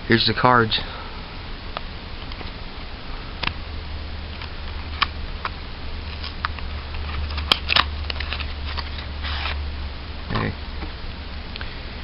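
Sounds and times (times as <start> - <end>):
steady low hum: 0.0 - 12.0
trading cards being handled: 4.4 - 9.6.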